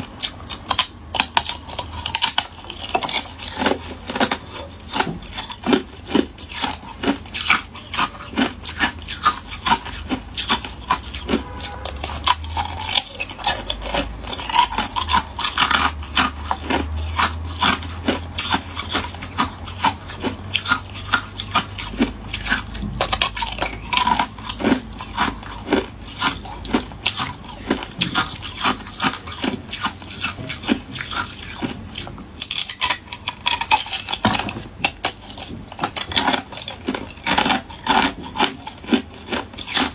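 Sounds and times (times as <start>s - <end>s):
ice cubes crunching in mouth: 0.0s - 39.9s.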